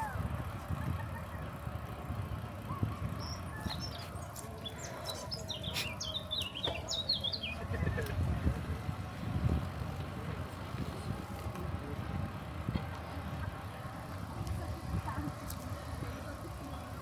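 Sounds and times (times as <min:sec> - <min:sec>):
low steady rumble: 0:00.0 - 0:17.0
songbird chirping: 0:03.1 - 0:07.7.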